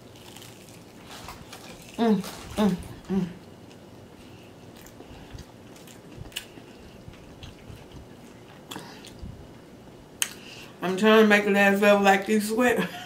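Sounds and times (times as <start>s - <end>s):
person chewing food: 0.0s - 10.7s
wet mouth clicks and smacks: 10.2s - 10.4s.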